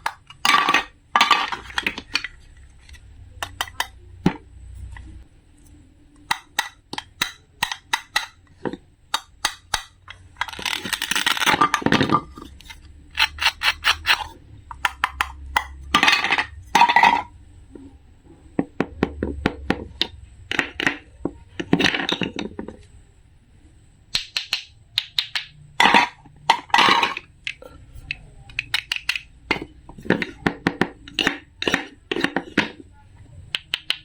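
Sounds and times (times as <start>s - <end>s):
small hard objects clicking: 9.1s - 17.0s, 24.1s - 32.7s, 33.5s - 34.0s.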